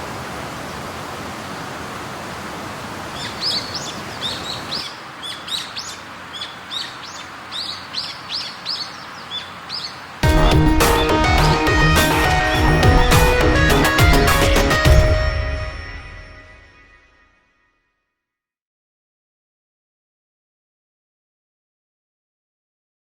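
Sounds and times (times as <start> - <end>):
bird chirping: 3.1 - 13.9
music: 10.2 - 18.0.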